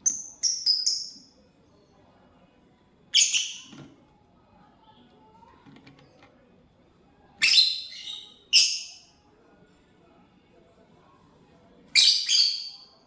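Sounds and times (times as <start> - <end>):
lovebird high-pitched calls: 0.0 - 1.2, 3.1 - 3.7, 7.4 - 9.1, 12.0 - 12.9.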